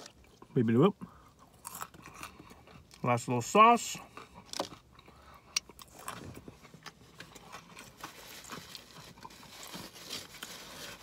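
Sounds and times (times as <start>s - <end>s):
person chewing food: 1.1s - 3.0s, 4.0s - 9.8s.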